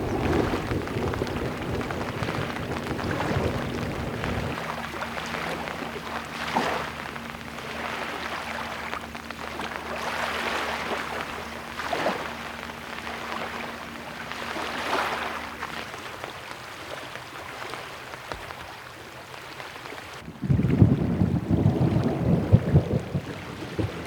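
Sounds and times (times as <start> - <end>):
lake waves washing onto beach: 0.0 - 24.0.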